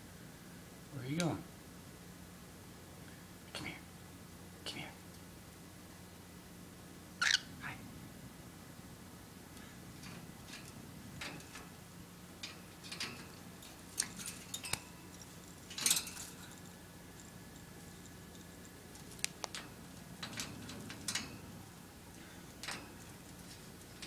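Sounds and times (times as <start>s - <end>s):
bird squeaky calls: 7.2s - 7.5s
small clicks and taps: 17.2s - 21.0s.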